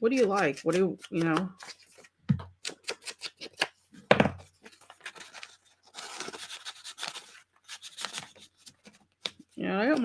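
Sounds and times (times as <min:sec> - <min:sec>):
paper being handled: 0:04.6 - 0:10.0.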